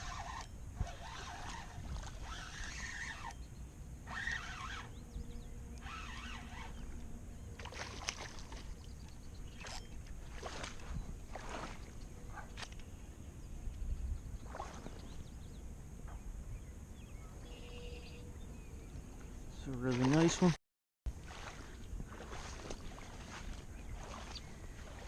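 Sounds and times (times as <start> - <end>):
wind rumble on microphone: 0.0 - 4.2, 4.9 - 20.5, 21.1 - 25.0.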